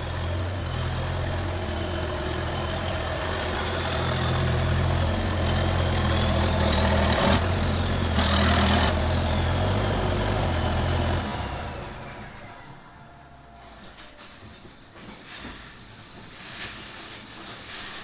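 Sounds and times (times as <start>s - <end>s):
diesel tractor engine running: 0.0s - 14.2s.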